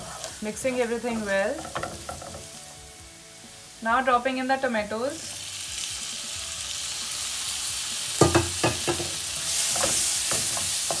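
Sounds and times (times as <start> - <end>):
tomatoes sizzling in hot oil: 0.0 - 11.0
wooden spatula knocking pan: 1.5 - 2.5, 8.2 - 9.2.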